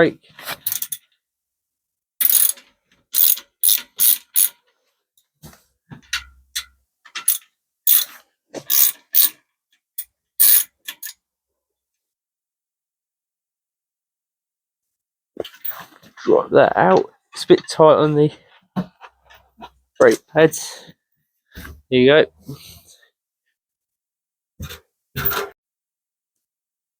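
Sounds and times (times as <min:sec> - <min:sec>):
ratchet wrench clicking: 0:02.2 - 0:04.6, 0:07.2 - 0:08.1, 0:08.7 - 0:09.4, 0:10.4 - 0:11.1.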